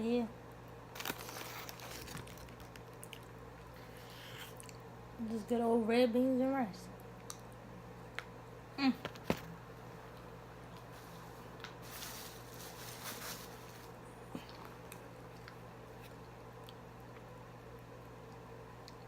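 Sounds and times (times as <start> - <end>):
electrical hum: 0.0 - 19.0
soft rustle: 10.8 - 14.0.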